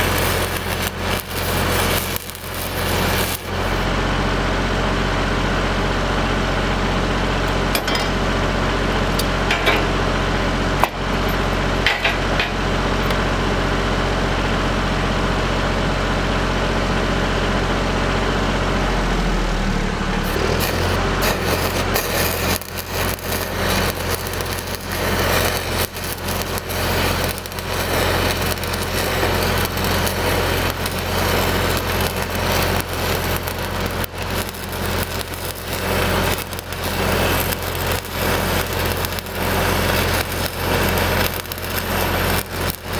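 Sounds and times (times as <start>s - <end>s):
welding arc crackling: 0.0s - 3.9s, 19.0s - 42.9s
welder engine running: 0.0s - 42.9s.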